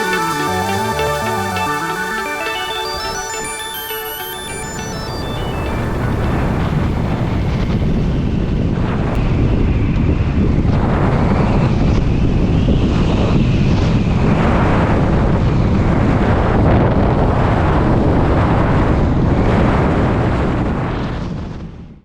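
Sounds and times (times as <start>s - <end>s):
wind noise on microphone: 4.4s - 22.0s.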